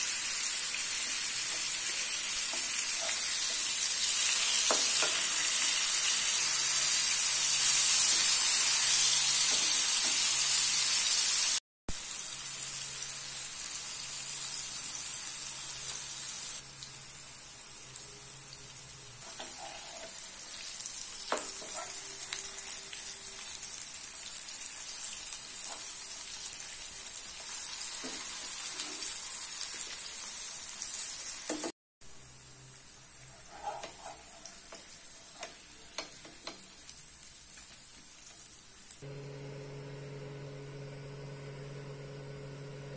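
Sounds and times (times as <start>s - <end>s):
food sizzling in oil: 0.0s - 42.8s
metal spatula tapping and scraping: 4.7s - 5.5s, 19.2s - 20.2s, 33.3s - 36.7s.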